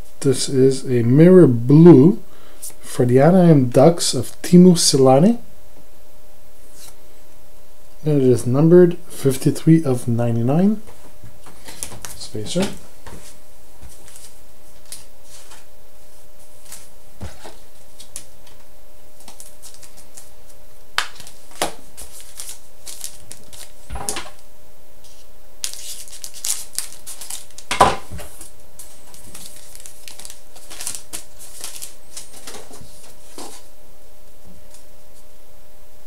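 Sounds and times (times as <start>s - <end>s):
faint steady hum: 0.0s - 36.0s
cards and wrappers rustling: 11.4s - 15.7s, 19.2s - 24.0s, 25.1s - 33.7s.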